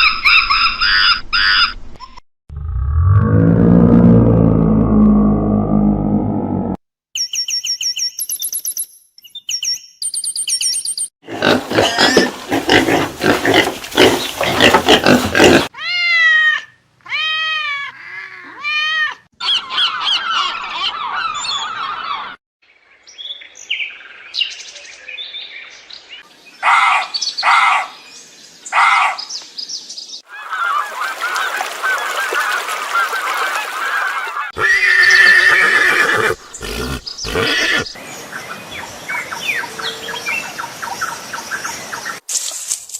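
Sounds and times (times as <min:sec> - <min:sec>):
animal calls: 0:11.2 - 0:17.2, 0:33.7 - 0:38.0.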